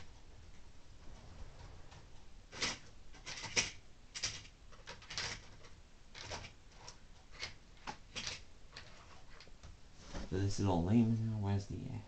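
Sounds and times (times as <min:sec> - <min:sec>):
small plastic clicks and clatters: 0:01.9 - 0:09.8.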